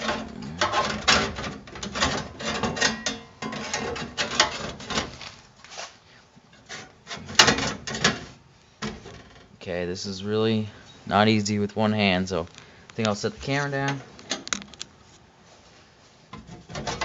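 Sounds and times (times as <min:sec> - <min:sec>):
sheet metal clattering and scraping: 0:00.0 - 0:05.4, 0:06.6 - 0:09.5, 0:16.3 - 0:17.0.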